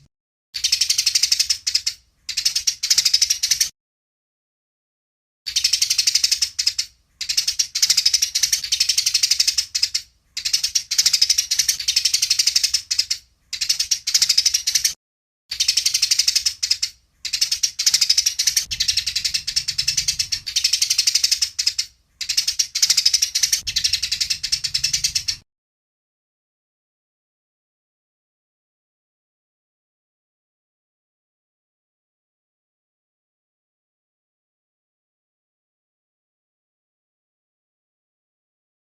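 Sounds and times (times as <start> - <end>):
sparrows chattering harshly: 0.6 - 3.7, 5.5 - 25.4.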